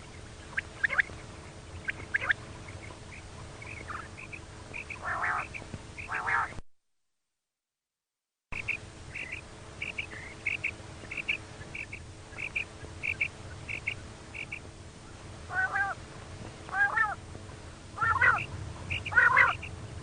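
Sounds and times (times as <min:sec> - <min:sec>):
quail soft high calls: 0:00.4 - 0:06.6, 0:08.6 - 0:16.0, 0:16.7 - 0:17.2, 0:18.0 - 0:19.8
quail harsh calls: 0:00.5 - 0:01.2, 0:01.8 - 0:06.6, 0:08.6 - 0:14.7, 0:15.5 - 0:16.0, 0:16.7 - 0:17.2, 0:18.0 - 0:19.8.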